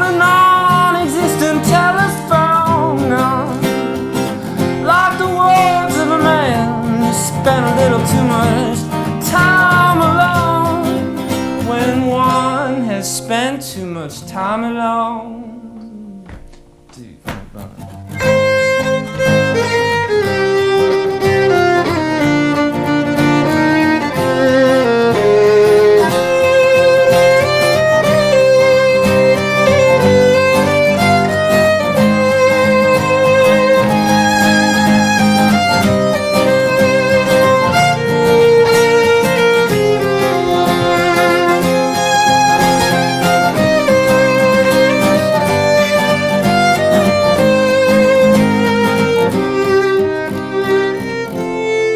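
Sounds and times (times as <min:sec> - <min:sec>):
solo violin melody: 0:00.0 - 0:13.8, 0:18.1 - 0:51.9
low accompaniment: 0:15.3 - 0:51.9.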